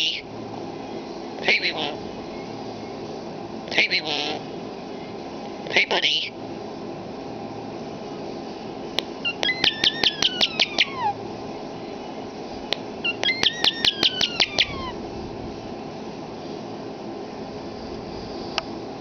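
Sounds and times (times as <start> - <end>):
starling clicks and whistles: 9.0 - 11.2, 12.7 - 15.0.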